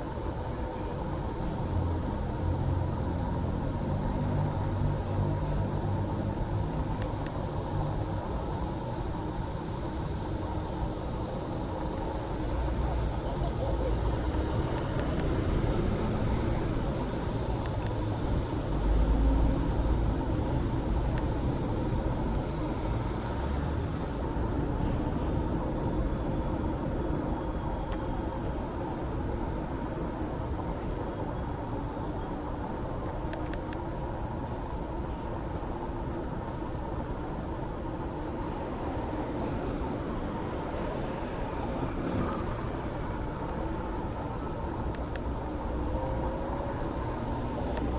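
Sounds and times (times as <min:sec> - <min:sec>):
road traffic rumble: 0:00.0 - 0:47.9
faint ticks: 0:17.6 - 0:18.0, 0:44.7 - 0:45.8, 0:47.6 - 0:47.9.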